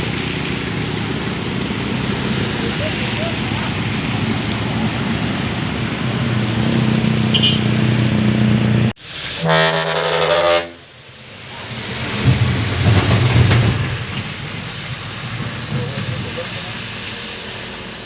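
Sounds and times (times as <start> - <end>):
truck diesel engine running hard: 0.0 - 9.0
truck horn blast: 7.2 - 7.9, 9.4 - 10.9.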